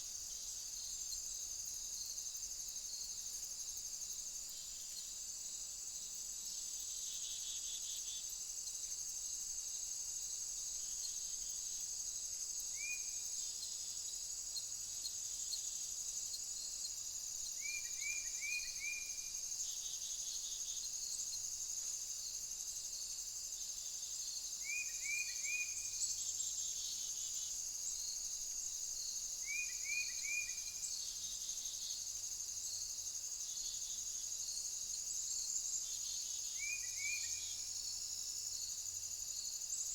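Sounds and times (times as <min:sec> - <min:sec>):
crickets and insects chorus: 0:00.0 - 0:39.9.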